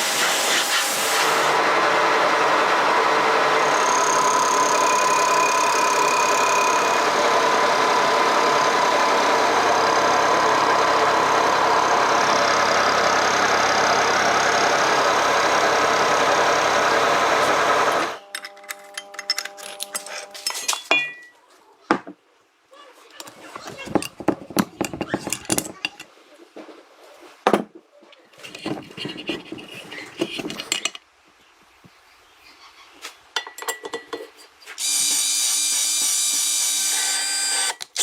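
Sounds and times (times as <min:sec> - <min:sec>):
loud machine noise with hiss: 0:00.0 - 0:18.2.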